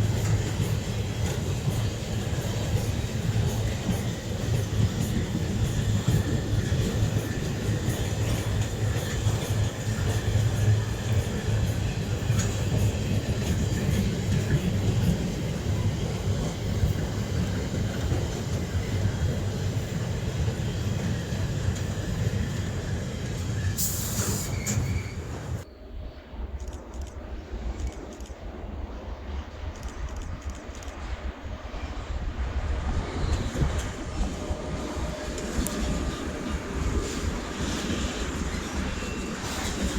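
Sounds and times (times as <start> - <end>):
train wagons rumbling on rails: 0.0 - 25.7, 26.5 - 39.9
wheel squeal: 20.6 - 25.6, 37.0 - 39.9.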